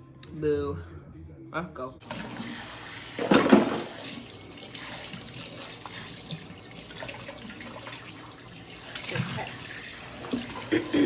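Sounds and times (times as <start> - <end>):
tap running into sink: 2.0 - 4.3
water splash: 2.0 - 8.1.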